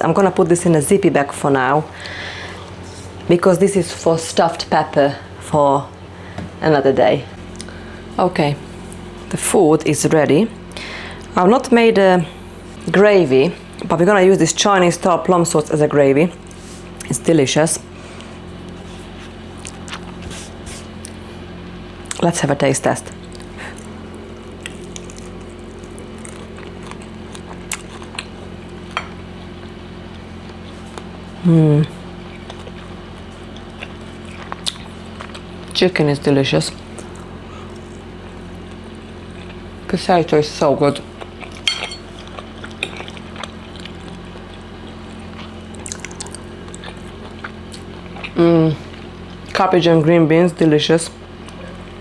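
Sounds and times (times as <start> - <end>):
low electrical hum: 0.0 - 52.0
person chewing food: 18.2 - 21.3, 23.1 - 35.8, 36.8 - 39.8, 41.0 - 49.5
mouth chewing: 31.8 - 35.8, 41.0 - 49.5.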